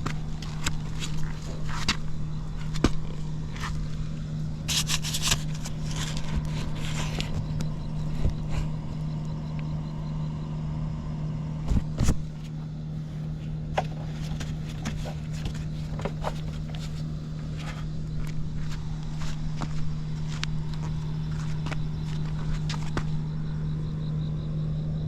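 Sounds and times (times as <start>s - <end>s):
scooter engine idling: 0.0s - 25.0s
clicks and scrapes: 4.7s - 8.7s.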